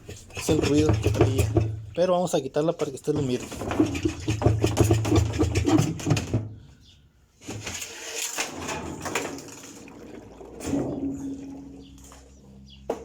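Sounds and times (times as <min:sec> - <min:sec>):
washing machine handling noise: 0:00.0 - 0:01.9, 0:03.1 - 0:06.6
parts scraping and clattering: 0:00.0 - 0:06.7, 0:07.4 - 0:13.0.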